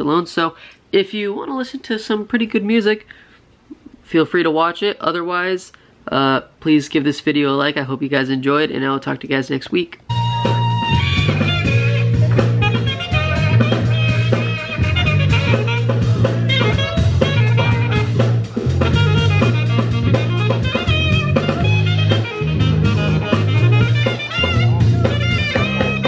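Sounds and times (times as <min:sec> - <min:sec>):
drum kit steady beat: 0:10.1 - 0:26.0
guitar lines: 0:10.1 - 0:26.0
low bass notes: 0:10.1 - 0:26.0.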